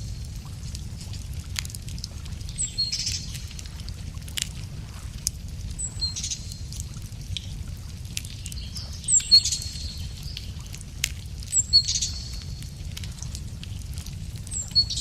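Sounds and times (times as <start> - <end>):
wood fire crackling: 0.0 - 15.0
songbird whistling: 14.5 - 15.0.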